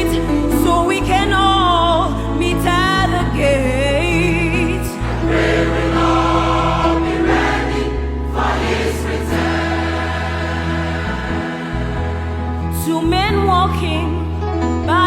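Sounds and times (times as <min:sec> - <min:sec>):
low bass notes: 0:03.1 - 0:14.3
gospel choir singing: 0:04.5 - 0:12.9.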